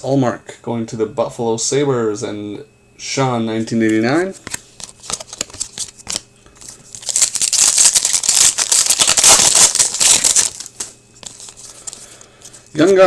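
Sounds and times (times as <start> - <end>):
wrapper tearing and crinkling: 4.8 - 12.1.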